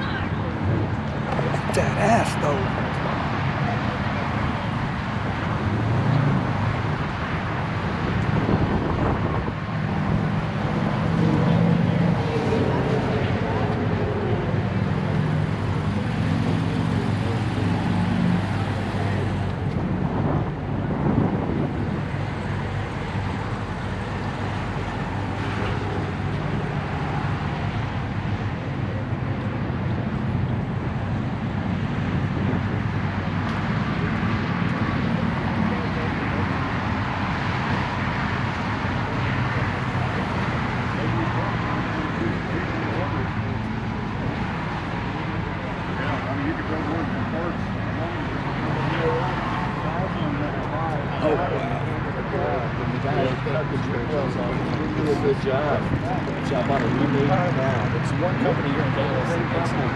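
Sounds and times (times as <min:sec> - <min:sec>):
outdoor traffic noise: 0:00.0 - 0:59.9
wind noise on microphone: 0:04.2 - 0:12.4, 0:18.4 - 0:27.0, 0:27.6 - 0:39.3.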